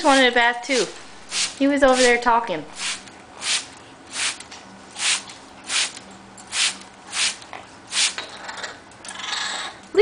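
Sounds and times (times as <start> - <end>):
spray bottle hissing squirts: 0.8 - 4.4, 5.0 - 8.2.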